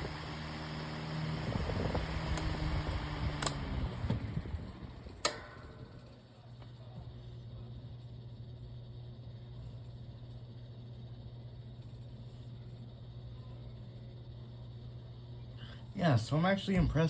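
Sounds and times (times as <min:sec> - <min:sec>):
table fan humming: 0:00.0 - 0:17.0
sharp clicks: 0:02.3 - 0:04.2, 0:05.2 - 0:06.0.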